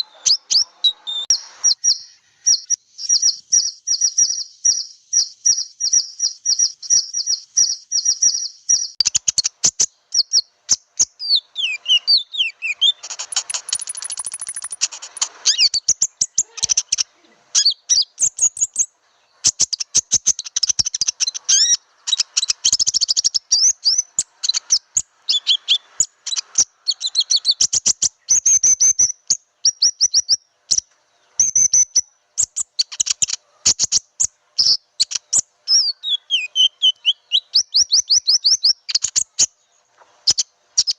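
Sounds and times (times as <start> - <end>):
bird song with clicks and whistles: 0.0 - 40.9
bird lure call chirps: 11.1 - 18.8.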